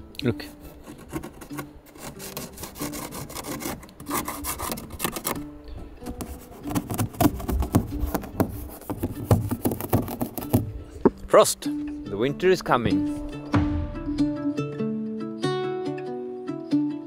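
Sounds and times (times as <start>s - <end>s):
scratchy scraping strokes: 0.4s - 5.4s, 6.0s - 10.6s.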